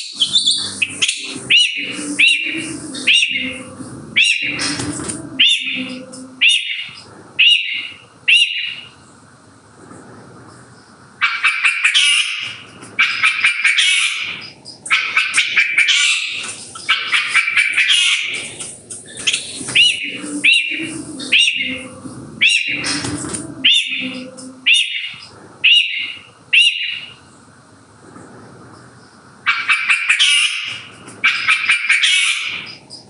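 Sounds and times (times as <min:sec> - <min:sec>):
shrike singing: 0:00.0 - 0:09.0, 0:13.0 - 0:27.1.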